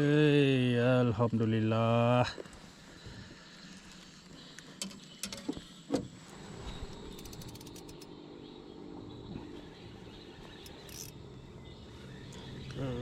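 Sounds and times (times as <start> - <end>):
fishing reel clicking: 7.1 - 8.1, 10.6 - 11.2
fishing reel knocks: 7.1 - 8.1, 10.6 - 11.1.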